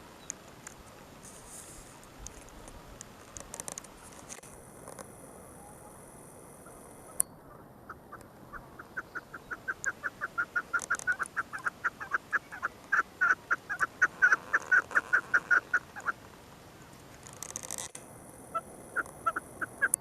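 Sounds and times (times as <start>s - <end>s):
bird rapid short calls: 7.5s - 16.2s.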